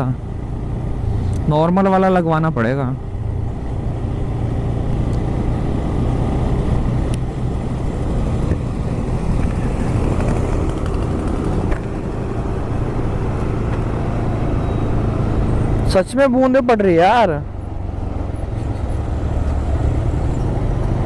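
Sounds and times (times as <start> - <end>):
road and air noise: 0.0 - 21.0
motorcycle engine running: 7.8 - 14.0.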